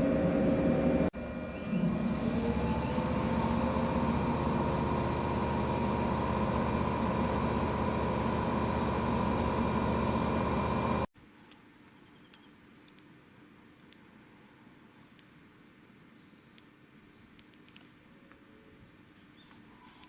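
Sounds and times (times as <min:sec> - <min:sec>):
electric train rumbling: 0:00.0 - 0:11.1
train motor whine: 0:00.0 - 0:11.1.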